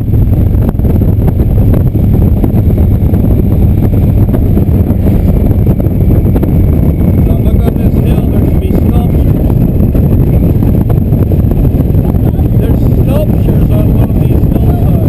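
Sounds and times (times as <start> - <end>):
motorcycle engine rumble: 0.0 - 15.0
wind buffeting on microphone: 0.0 - 15.0.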